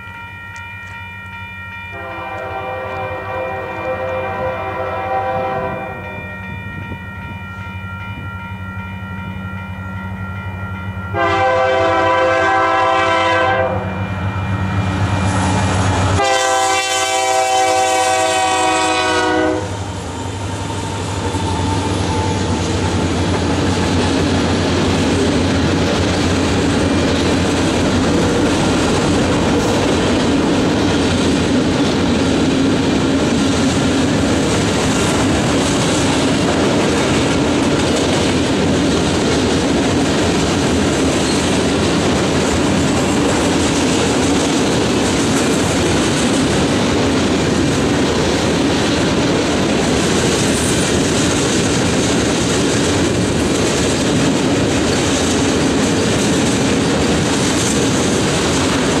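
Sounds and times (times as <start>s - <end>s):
train horn blasts: 0.0s - 20.0s
train wheels rumbling on rails: 9.2s - 59.0s
locomotive engine: 10.8s - 59.0s.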